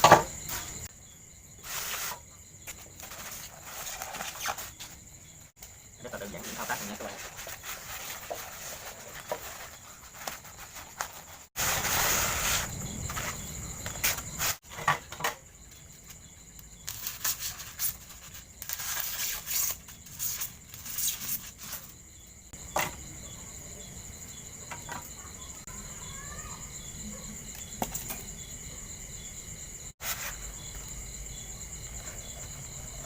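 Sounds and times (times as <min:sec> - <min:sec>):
insects calling: 0:00.0 - 0:33.0
styrofoam rustling and scraping: 0:01.6 - 0:05.0, 0:06.2 - 0:14.6, 0:16.9 - 0:21.9, 0:30.0 - 0:30.8.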